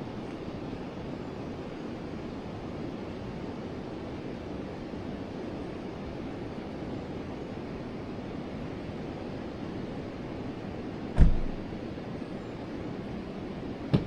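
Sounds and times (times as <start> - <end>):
sudden low thump: 11.2 - 11.7.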